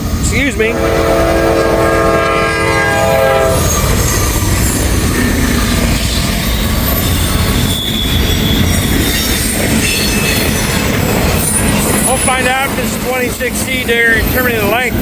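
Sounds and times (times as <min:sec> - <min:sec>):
train rushing past: 0:00.0 - 0:15.0
train chord horn: 0:00.7 - 0:03.8
wheel squeal: 0:03.6 - 0:14.6.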